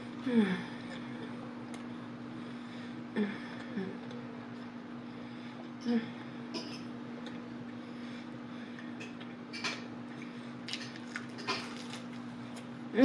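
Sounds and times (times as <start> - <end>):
steady low hum: 0.0 - 13.0
crunchy chewing: 10.2 - 12.7.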